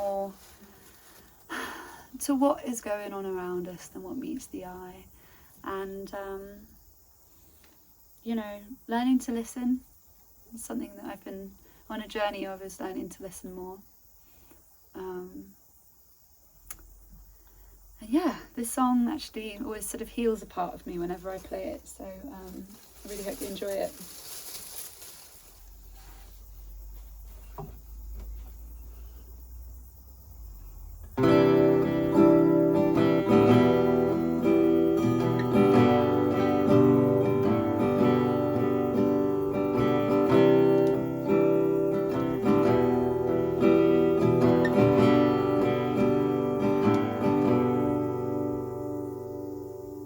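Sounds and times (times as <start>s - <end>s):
faint knocks: 27.3s - 28.6s
acoustic guitar playing chords: 31.1s - 50.0s.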